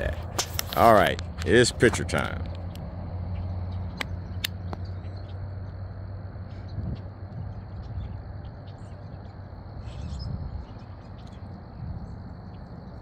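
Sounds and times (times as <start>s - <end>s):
wind rumble on microphone: 0.0s - 13.0s
faint chirps: 3.3s - 13.0s.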